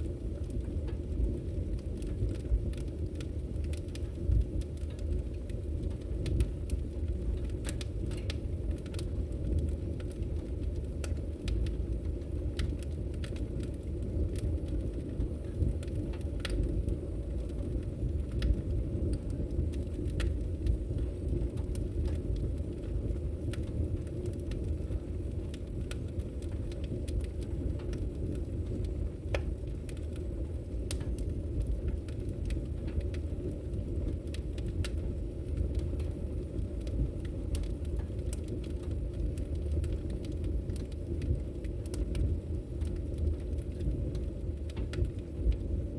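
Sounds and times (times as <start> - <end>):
sharp snaps and pops of fire: 0.0 - 45.9
wood fire crackling: 0.0 - 45.9.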